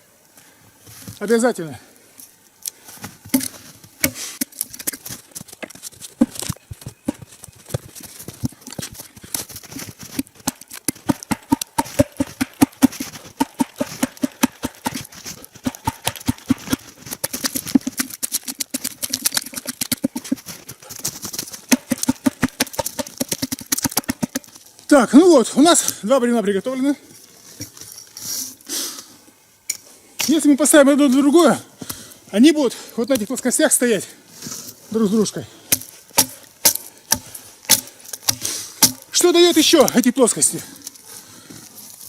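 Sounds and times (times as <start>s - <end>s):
axe chopping log: 3.3s - 4.6s, 10.0s - 20.6s, 21.4s - 24.5s, 35.7s - 39.2s.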